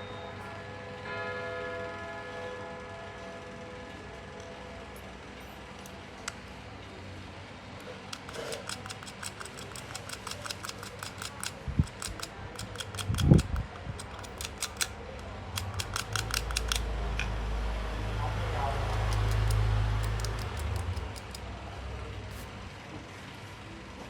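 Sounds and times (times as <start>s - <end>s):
rapid light clicks: 7.8s - 16.9s, 18.8s - 21.5s.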